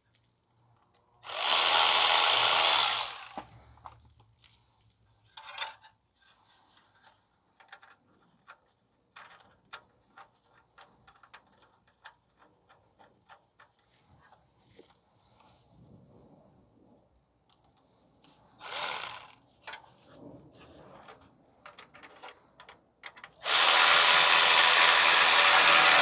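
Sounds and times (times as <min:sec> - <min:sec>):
power tool running: 0:01.2 - 0:03.5, 0:18.6 - 0:19.4, 0:23.4 - 0:26.0
metal parts clicking and tapping: 0:07.6 - 0:14.4.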